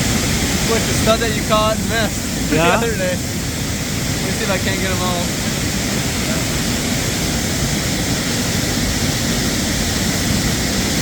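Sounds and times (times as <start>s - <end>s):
water pouring over small dam: 0.0s - 11.0s.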